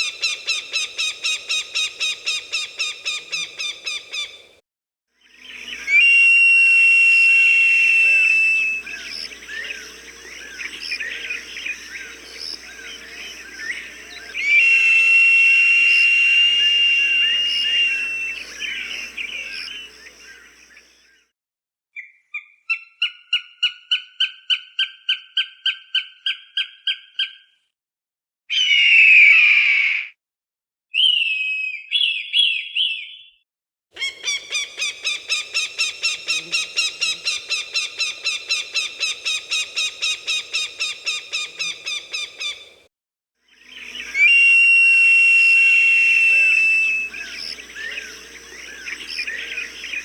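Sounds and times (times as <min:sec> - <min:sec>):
falcon calling: 0:00.0 - 0:04.4, 0:05.5 - 0:20.6, 0:34.0 - 0:42.8, 0:43.7 - 0:50.0.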